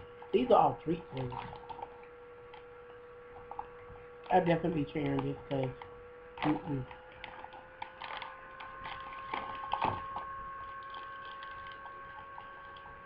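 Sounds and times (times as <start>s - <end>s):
electrical hum: 0.0s - 13.0s
plastic snack package crinkling: 1.1s - 2.7s, 4.6s - 13.0s.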